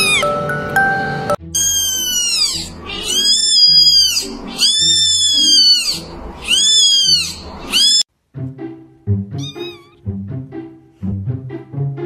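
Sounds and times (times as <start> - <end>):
kitten mewing loudly: 1.6 - 8.0, 9.4 - 10.0.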